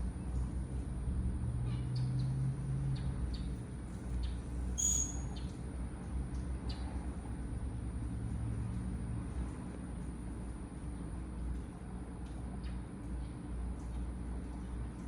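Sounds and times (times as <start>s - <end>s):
steady low hum: 0.0s - 15.0s
whistled bird note: 4.8s - 5.3s.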